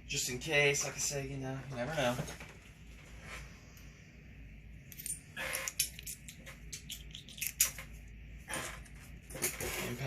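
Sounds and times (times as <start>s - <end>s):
metal hand tools clinking: 4.9s - 7.7s.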